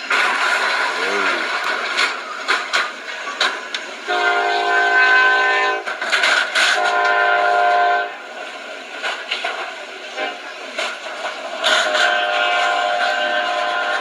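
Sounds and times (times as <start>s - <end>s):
train noise: 0.0s - 14.0s
locomotive air horn: 4.1s - 5.9s, 6.6s - 8.2s, 11.6s - 14.0s.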